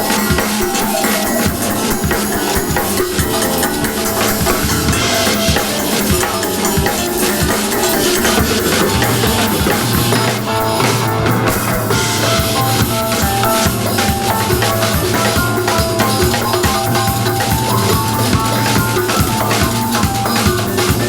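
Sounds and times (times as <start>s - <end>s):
busy drum kit: 0.0s - 21.0s
sustained guitar and bass: 8.1s - 21.0s.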